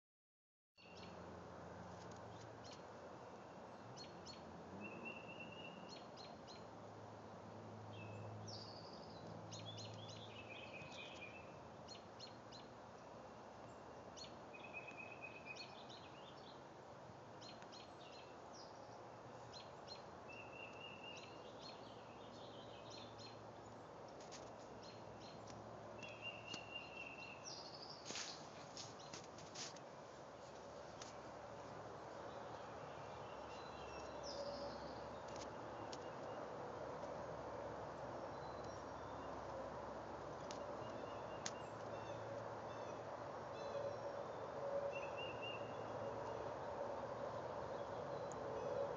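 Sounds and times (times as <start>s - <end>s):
birds chirping and trilling: 32.0s - 36.5s.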